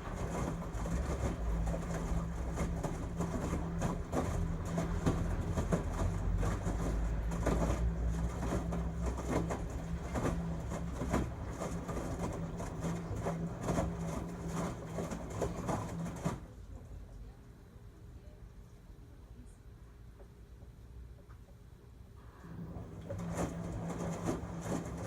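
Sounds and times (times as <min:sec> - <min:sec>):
laundry knocking and swishing in drum: 0:00.0 - 0:16.5, 0:22.6 - 0:25.0
washing machine motor hum: 0:00.0 - 0:17.4, 0:22.3 - 0:25.0.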